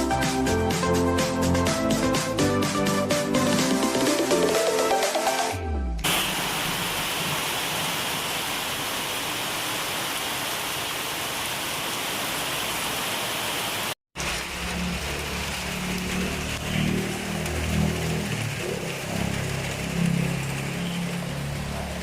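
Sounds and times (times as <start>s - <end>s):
rain falling: 6.0s - 22.0s.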